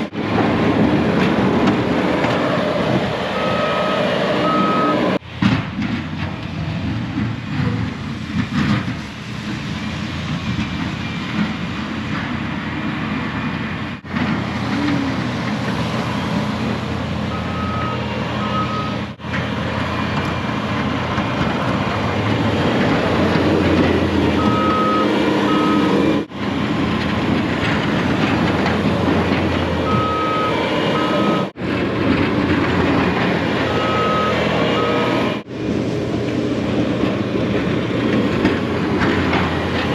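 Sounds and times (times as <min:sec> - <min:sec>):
vehicle engine running under load: 0:00.0 - 0:39.9
reversing alarm beeping: 0:03.3 - 0:05.2, 0:17.3 - 0:19.1, 0:24.4 - 0:26.2, 0:29.8 - 0:31.5, 0:33.6 - 0:35.4.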